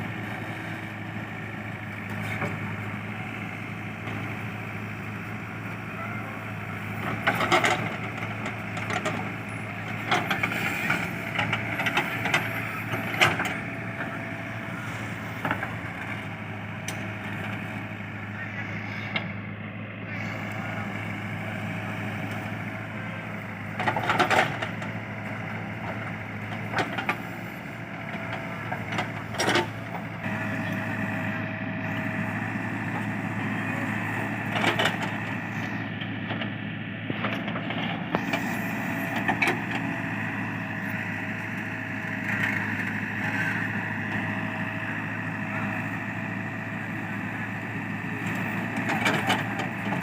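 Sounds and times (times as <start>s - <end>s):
diesel engine running: 0.0s - 50.0s
hydraulic whine: 28.5s - 46.4s.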